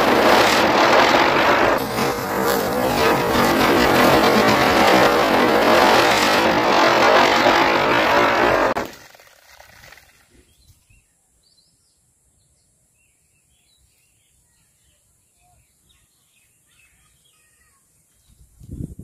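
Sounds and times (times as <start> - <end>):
short burst of noise: 0.0 - 10.2.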